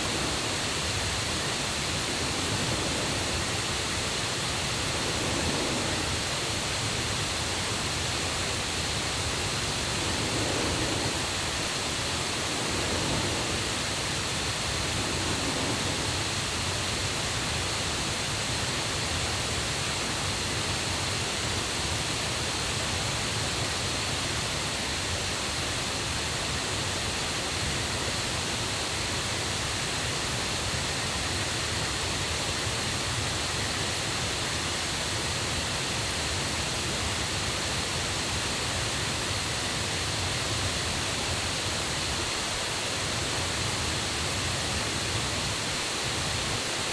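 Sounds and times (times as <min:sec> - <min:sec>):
river and waterfall rushing: 0:00.0 - 0:18.6, 0:32.6 - 0:46.9.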